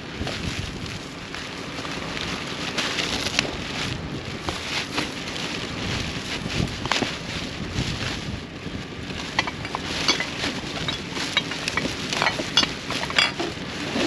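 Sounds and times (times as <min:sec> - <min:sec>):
wind noise on microphone: 0:00.0 - 0:14.0
containers and bottles handled: 0:09.2 - 0:14.0.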